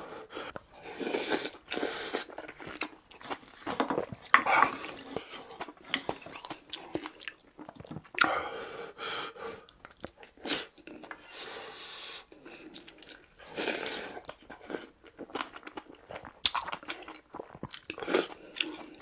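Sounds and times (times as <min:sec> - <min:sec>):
man chewing food: 0:00.0 - 0:19.0.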